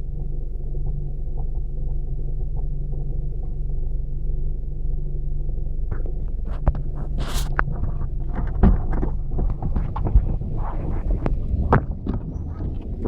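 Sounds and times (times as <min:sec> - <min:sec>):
car engine running: 0:00.0 - 0:13.0
sharp clicks and knocks: 0:05.9 - 0:13.0.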